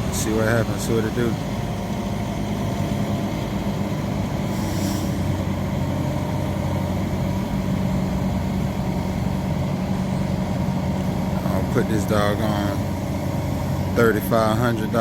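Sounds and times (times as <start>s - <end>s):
engine idling: 0.0s - 15.0s
short hiss: 4.5s - 5.3s.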